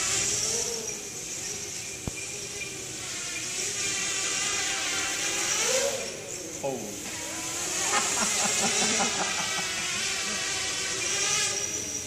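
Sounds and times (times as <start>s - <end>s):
quadcopter motors whining: 0.0s - 12.0s
high hiss: 5.7s - 12.0s.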